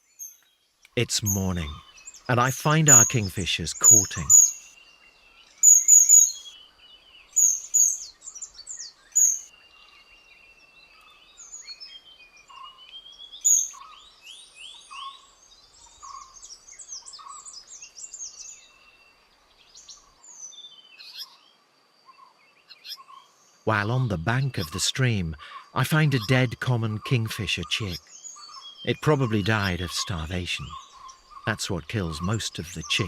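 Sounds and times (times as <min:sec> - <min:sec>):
sharp high-pitched bird calls: 0:01.0 - 0:04.8, 0:05.6 - 0:06.6, 0:07.3 - 0:09.5, 0:12.4 - 0:14.0.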